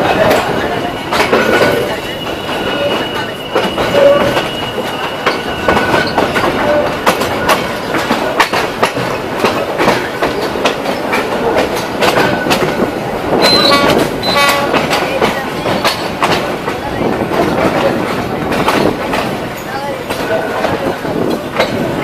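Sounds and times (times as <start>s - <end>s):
train wheels clattering: 0.0s - 22.0s.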